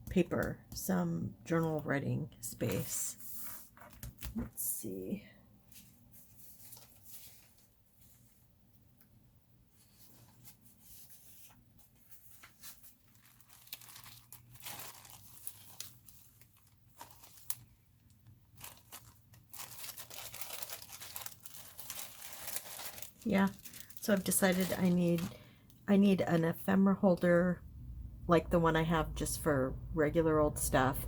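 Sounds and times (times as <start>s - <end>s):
paper rustling and tearing: 9.8s - 17.8s, 18.6s - 25.4s.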